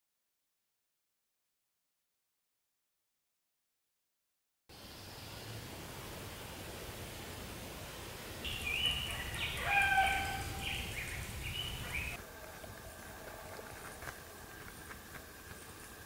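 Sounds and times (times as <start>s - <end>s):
bird whistling song: 8.5s - 12.2s.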